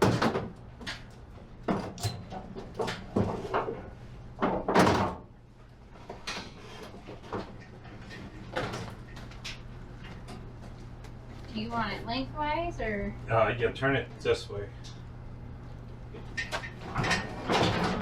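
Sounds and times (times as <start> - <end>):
low steady hum: 0.0 - 18.0
barbecue grill clunks and knocks: 16.4 - 18.0.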